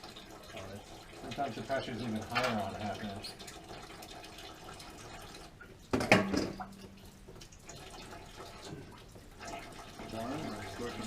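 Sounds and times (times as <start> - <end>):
water running and dripping: 0.0 - 11.0.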